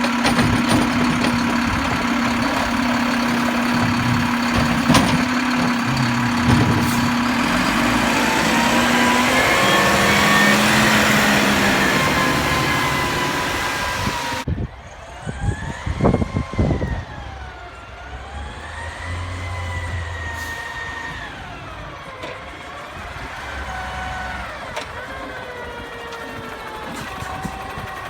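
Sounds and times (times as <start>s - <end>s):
heavy bangs: 0.0s - 14.4s
garbage truck high whine: 0.0s - 14.5s.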